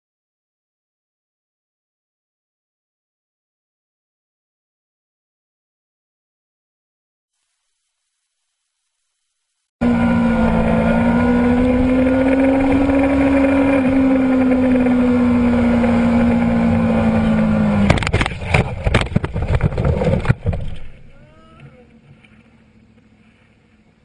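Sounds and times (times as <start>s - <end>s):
engine running at high speed: 9.8s - 24.0s.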